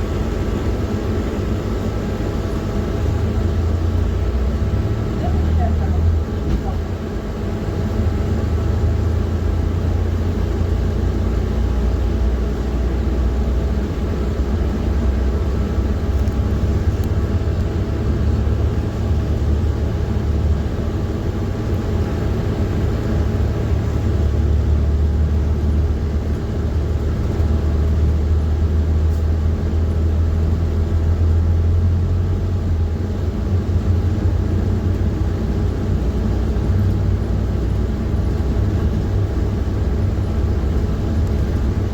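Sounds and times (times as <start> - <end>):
bus diesel engine drone: 0.0 - 41.9.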